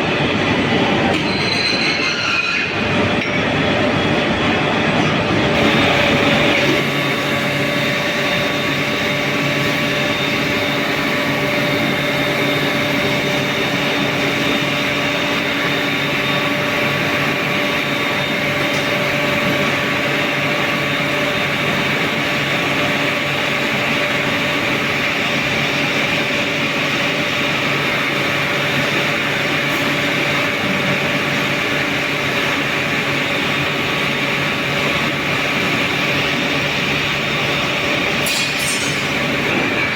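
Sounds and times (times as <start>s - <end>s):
machinery roar: 0.0s - 39.9s
constant humming tones: 2.6s - 39.9s.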